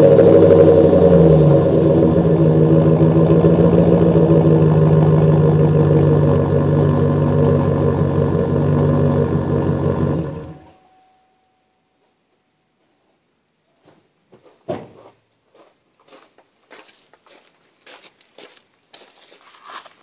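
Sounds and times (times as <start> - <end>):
engine droning through loud exhaust: 0.0 - 10.9.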